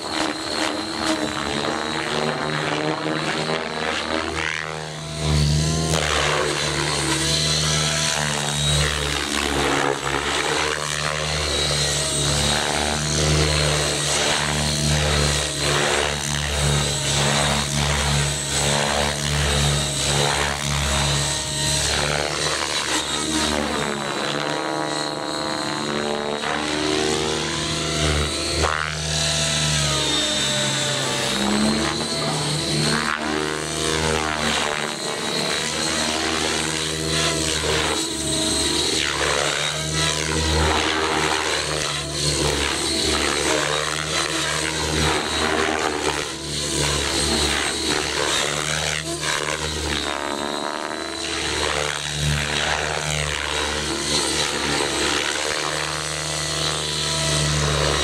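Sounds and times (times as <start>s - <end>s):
rc helicopter motor whine: 0.0s - 58.0s.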